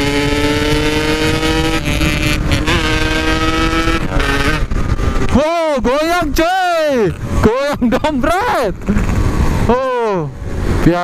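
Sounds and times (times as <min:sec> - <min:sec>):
motorcycle engine revving high: 0:00.0 - 0:05.8
wind rushing: 0:00.0 - 0:10.9.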